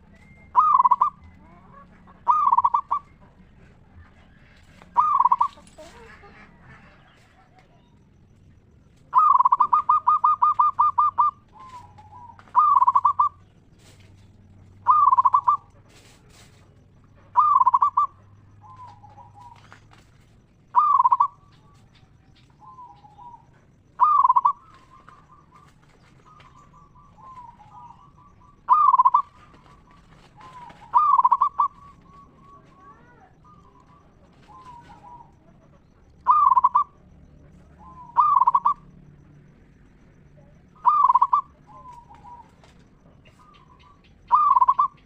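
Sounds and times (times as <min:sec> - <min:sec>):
dove trilling coos: 0:00.0 - 0:45.0
soft low dove coos: 0:00.0 - 0:45.0.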